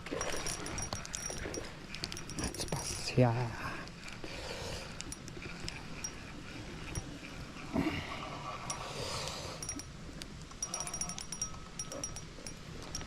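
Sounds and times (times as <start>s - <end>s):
sharp ringing clicks: 0.0s - 3.0s, 5.0s - 6.3s, 9.6s - 13.0s.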